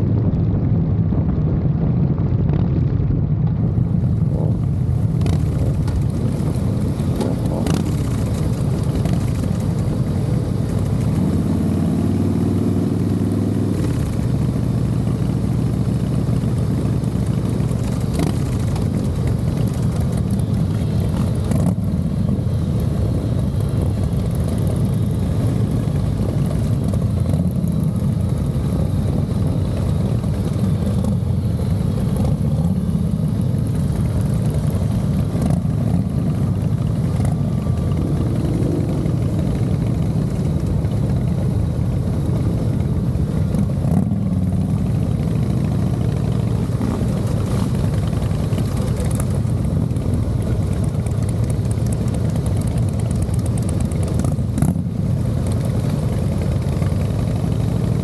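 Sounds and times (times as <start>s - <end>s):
wind and road noise: 0.0s - 58.0s
motorcycle engine running: 3.5s - 58.0s.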